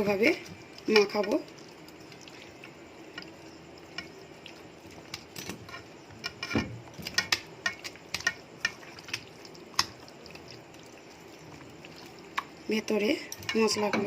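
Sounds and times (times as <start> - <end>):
clicks and clinks in a bowl: 5.1 - 10.0, 13.2 - 14.0.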